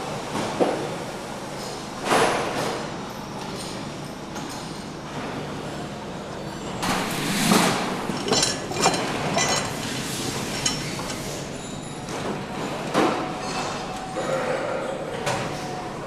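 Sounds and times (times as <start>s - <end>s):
hard objects clinking and knocking: 7.1s - 11.5s.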